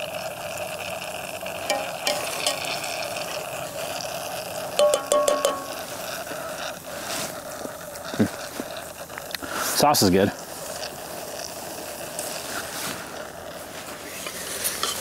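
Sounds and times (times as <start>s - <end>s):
chicken sizzling on grill: 0.0s - 15.0s
utensil clinking against pot: 1.7s - 4.0s, 4.7s - 6.1s, 14.2s - 15.0s.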